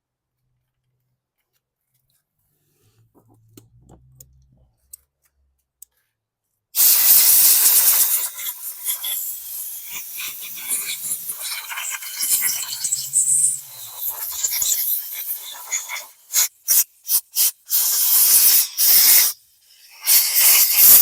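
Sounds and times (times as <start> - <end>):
faint clicks of parts handled: 3.0 - 6.6
compressed air hissing: 6.8 - 21.0.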